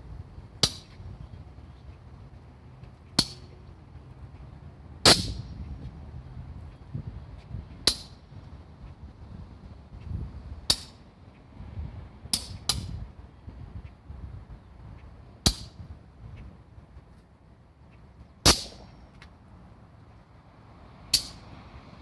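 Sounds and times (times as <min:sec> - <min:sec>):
low steady rumble: 0:00.0 - 0:22.0
sharp cracks: 0:05.0 - 0:05.5, 0:18.4 - 0:19.0, 0:21.1 - 0:21.4.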